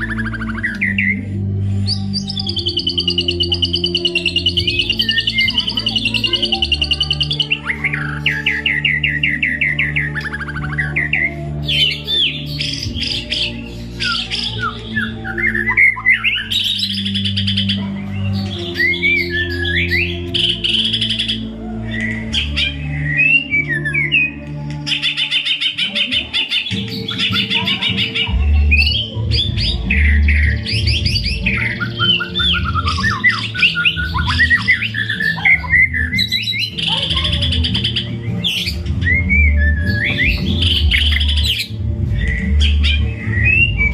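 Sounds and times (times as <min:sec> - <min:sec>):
songbird singing: 0:00.0 - 0:43.9.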